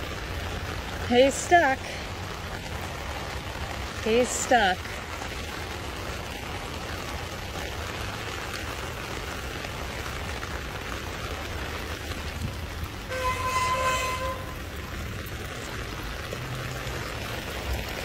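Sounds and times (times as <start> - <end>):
heavy rain on water: 0.0 - 18.0.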